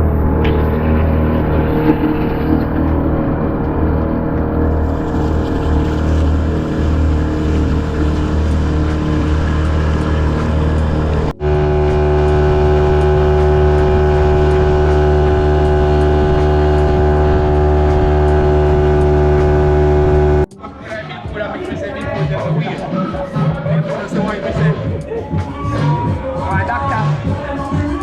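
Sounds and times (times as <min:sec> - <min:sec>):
boat motor running: 0:00.0 - 0:20.5.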